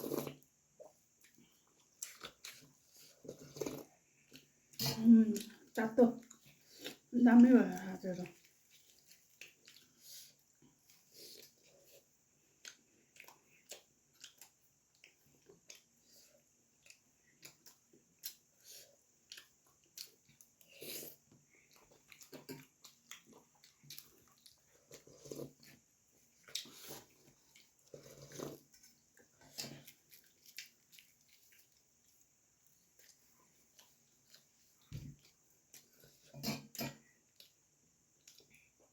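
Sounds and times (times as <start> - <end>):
person chewing food: 0.0 - 7.1, 7.8 - 38.9.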